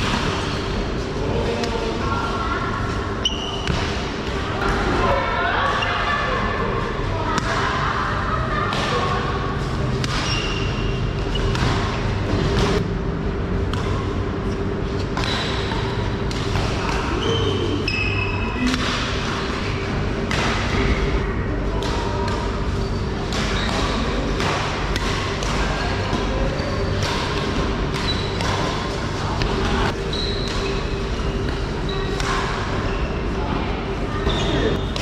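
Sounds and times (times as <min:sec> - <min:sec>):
steady background noise: 0:00.0 - 0:35.0
racket hitting shuttlecock: 0:23.2 - 0:26.2, 0:27.0 - 0:30.7.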